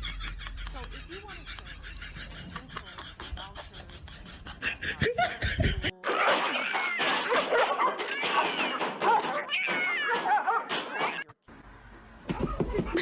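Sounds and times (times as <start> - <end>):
cats meowing: 6.3 - 11.4.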